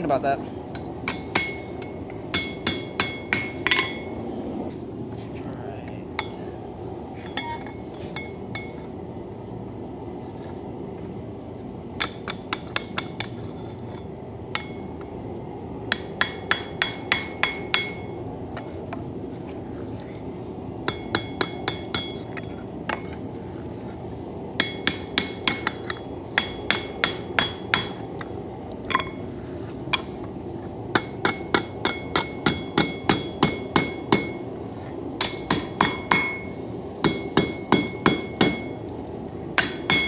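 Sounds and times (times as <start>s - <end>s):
hammer striking steel on anvil: 0.7s - 4.2s, 6.2s - 6.4s, 7.2s - 8.9s, 12.0s - 15.2s, 15.9s - 18.8s, 20.9s - 23.2s, 24.6s - 30.3s, 31.0s - 34.5s, 35.2s - 38.9s, 39.6s - 40.0s.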